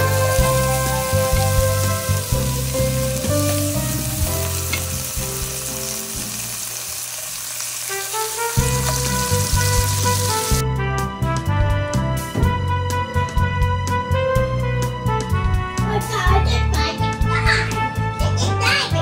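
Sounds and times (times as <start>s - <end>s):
shrimp sizzling in oil: 0.0s - 10.6s
background music: 0.0s - 19.0s.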